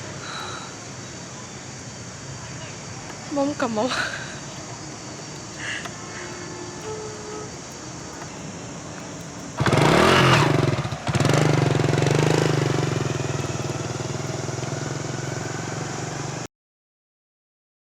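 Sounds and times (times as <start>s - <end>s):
motorcycle engine starting and revving: 4.9s - 16.5s.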